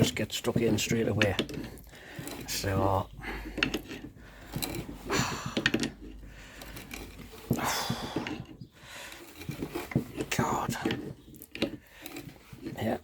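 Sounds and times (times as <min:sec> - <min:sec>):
spanner clicking and knocking on nut: 0:00.0 - 0:13.0
heavy breaths of effort: 0:01.7 - 0:02.5, 0:03.1 - 0:09.4.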